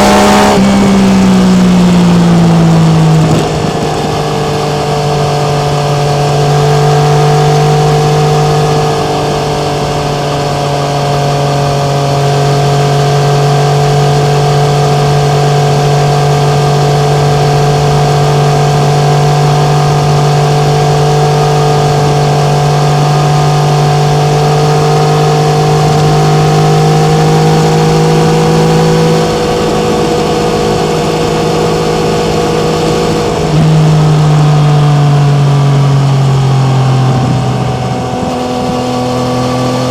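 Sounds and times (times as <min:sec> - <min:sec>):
wind rush: 0:00.0 - 0:06.0, 0:29.3 - 0:39.9
motorcycle engine cruising: 0:00.0 - 0:39.9.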